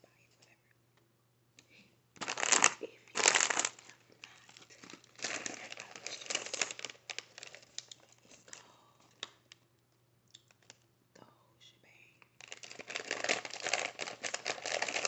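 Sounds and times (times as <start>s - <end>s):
crackling and crinkling by hand: 2.2s - 10.9s, 12.3s - 15.0s.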